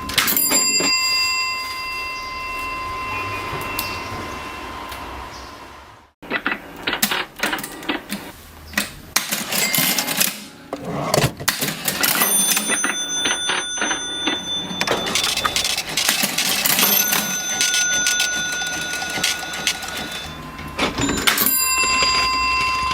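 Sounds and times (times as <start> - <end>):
cash register bell ringing: 0.0 - 4.5, 9.2 - 22.9
cash register keys clacking: 9.2 - 22.5.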